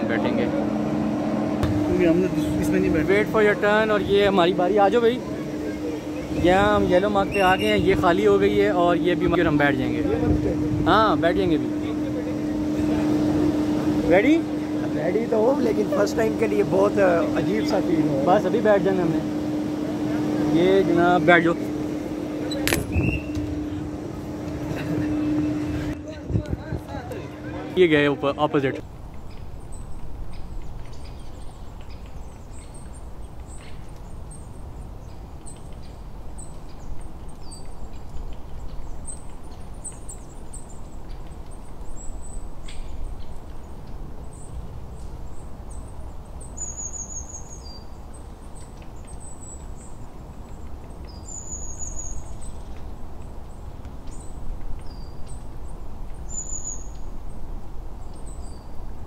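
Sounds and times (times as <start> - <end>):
low rumble: 0.0 - 27.5
small birds chirping: 1.6 - 23.9, 28.2 - 59.0.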